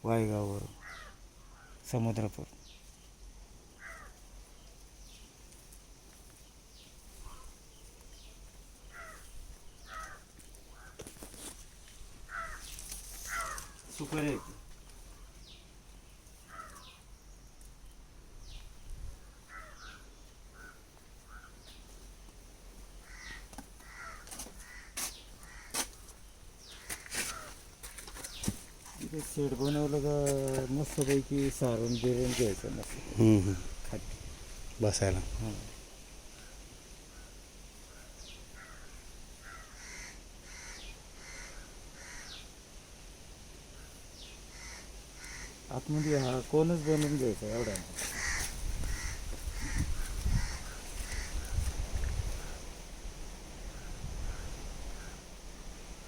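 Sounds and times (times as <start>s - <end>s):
birds cawing: 0.7s - 1.8s, 3.8s - 4.2s, 7.2s - 7.6s, 8.9s - 11.1s, 12.3s - 15.3s, 16.4s - 17.0s, 19.2s - 21.7s, 23.0s - 26.0s, 26.7s - 27.6s, 38.6s - 42.5s, 44.5s - 51.7s.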